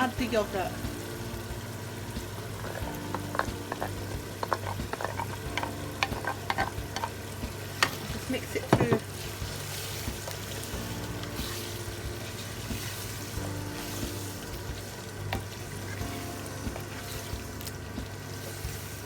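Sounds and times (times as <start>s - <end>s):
chicken sizzling in a pan: 0.0s - 19.0s
spoon stirring: 2.6s - 7.2s
spoon knocking against pan: 2.7s - 7.2s, 8.7s - 9.1s.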